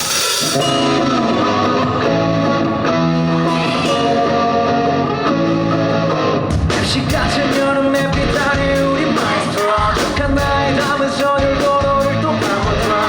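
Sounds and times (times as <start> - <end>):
bass line: 0.0 - 13.0
electric guitar chords: 0.0 - 13.0.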